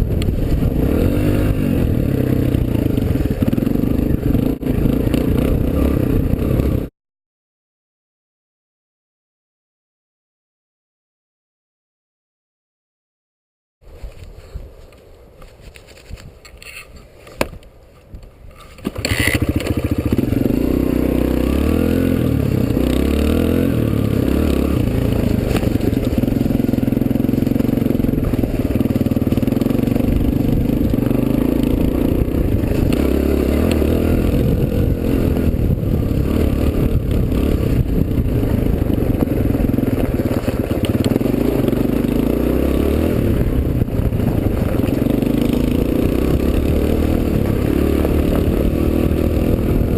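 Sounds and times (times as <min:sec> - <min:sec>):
dirt bike engine revving: 0:00.0 - 0:06.9, 0:19.0 - 0:49.9.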